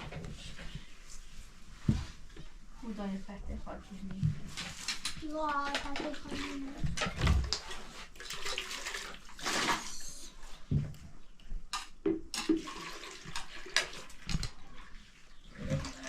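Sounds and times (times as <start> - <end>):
water splashing and sloshing: 4.0 - 11.0, 11.7 - 16.0.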